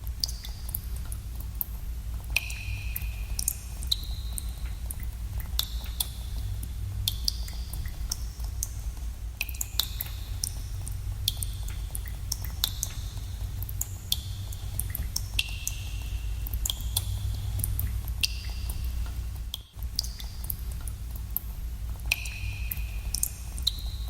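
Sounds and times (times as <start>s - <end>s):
water drops plinking: 2.4s - 4.4s, 22.1s - 23.8s.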